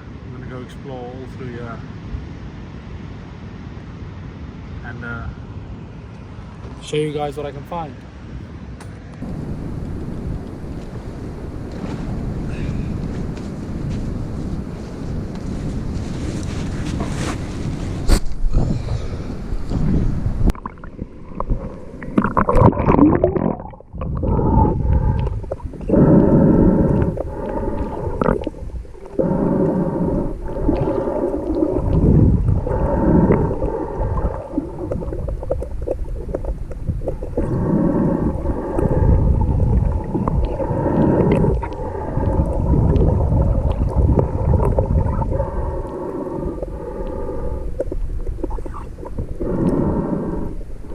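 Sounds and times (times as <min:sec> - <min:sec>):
faint steady hum: 0:00.0 - 0:17.4, 0:18.0 - 0:50.9
underwater water rushing: 0:18.6 - 0:50.9.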